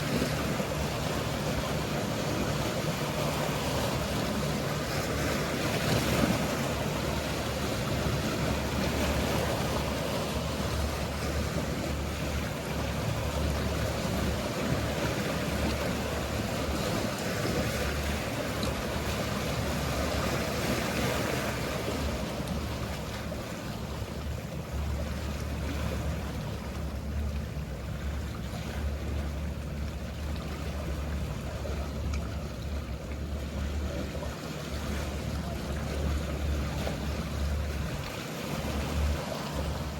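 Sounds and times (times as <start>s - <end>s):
low hum of boat engines: 0.0s - 39.9s
sea waves washing: 0.0s - 39.9s.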